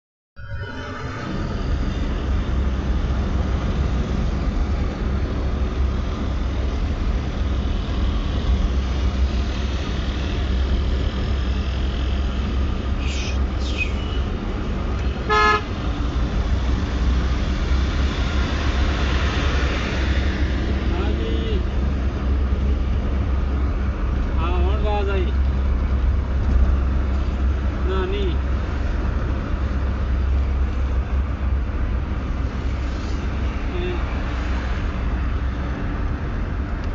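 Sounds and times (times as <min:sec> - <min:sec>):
road vehicle rumbling: 0:00.4 - 0:36.9
horn honk: 0:15.1 - 0:15.8.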